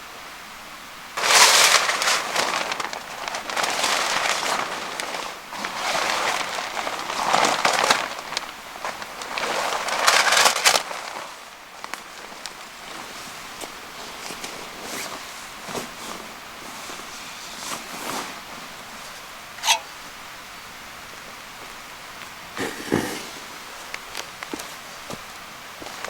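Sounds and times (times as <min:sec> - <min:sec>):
loud rustling and crunching: 0:01.2 - 0:20.3, 0:21.0 - 0:26.0.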